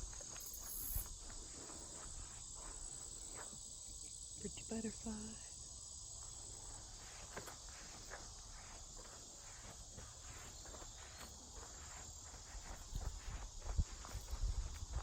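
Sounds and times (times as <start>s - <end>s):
insect chorus droning: 0.0s - 15.0s
footsteps on forest floor: 7.0s - 15.0s.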